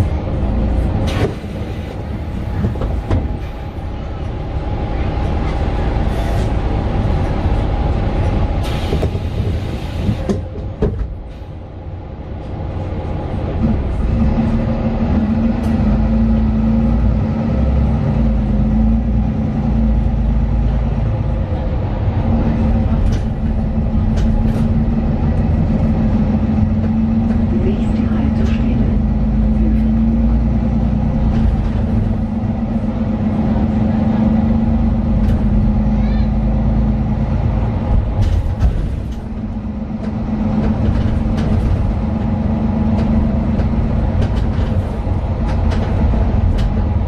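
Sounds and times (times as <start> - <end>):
bus engine drone: 0.0 - 47.0
brief air hiss: 8.6 - 10.0.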